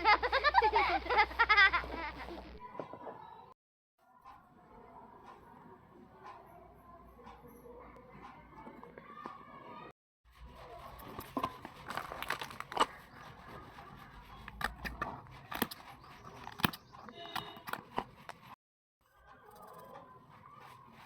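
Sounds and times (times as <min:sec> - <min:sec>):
scraping: 0:10.4 - 0:18.6
plastic packaging rustling: 0:11.0 - 0:13.1
sharp clicks and taps: 0:11.2 - 0:18.6.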